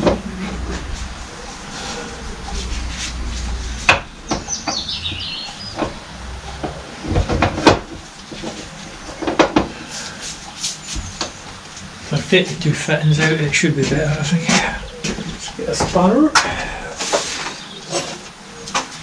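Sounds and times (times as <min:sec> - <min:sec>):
low rumble: 0:00.0 - 0:08.3.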